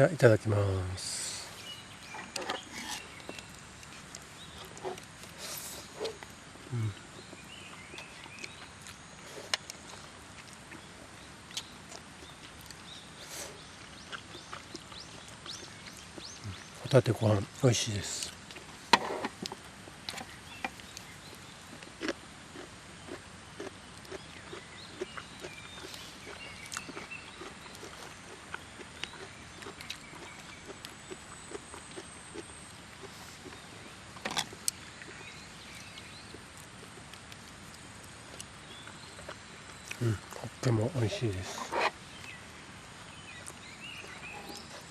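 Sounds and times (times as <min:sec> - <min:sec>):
person chewing food: 0:01.7 - 0:16.8, 0:18.2 - 0:40.6, 0:43.0 - 0:44.9
faint bird chirps: 0:38.6 - 0:44.9.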